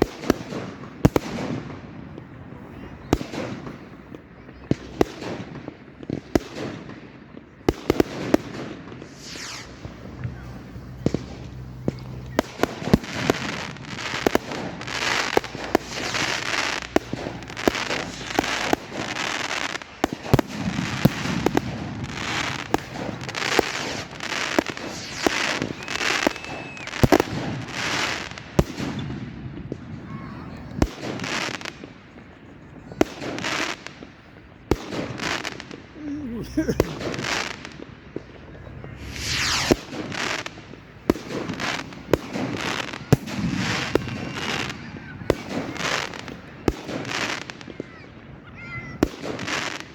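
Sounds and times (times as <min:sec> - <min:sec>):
fireworks bangs: 0:00.0 - 0:49.9
fireworks crackle and hiss: 0:00.0 - 0:49.9.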